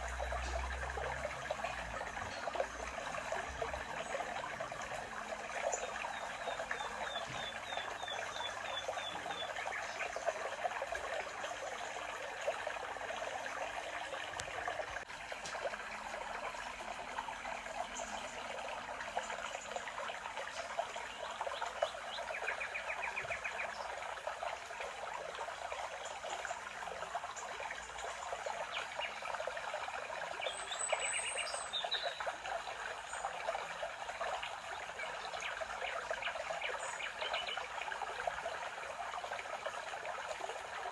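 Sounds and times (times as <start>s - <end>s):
stream trickling and babbling: 0.0s - 40.9s
birds chirping: 5.6s - 10.3s.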